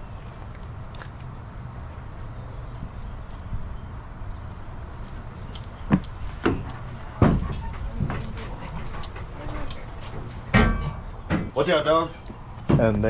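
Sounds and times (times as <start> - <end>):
sharp clinks and knocks: 5.0 - 12.8.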